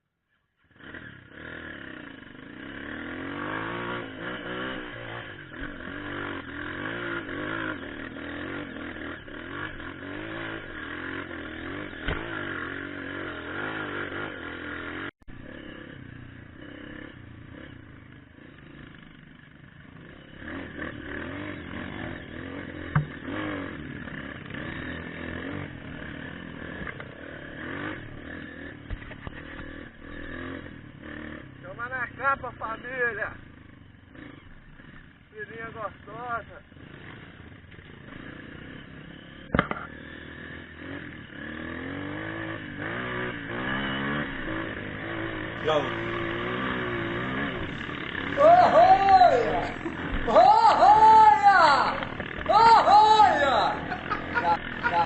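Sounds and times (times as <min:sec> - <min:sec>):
motorcycle engine revving: 0:00.5 - 0:55.0
sharp knocks: 0:22.9 - 0:23.3, 0:39.5 - 0:39.9.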